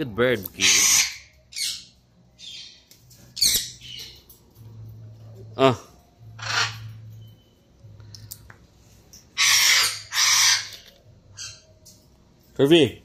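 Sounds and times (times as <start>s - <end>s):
parrot squawking: 0.6s - 2.8s, 3.4s - 4.2s, 6.4s - 7.1s, 9.4s - 11.7s.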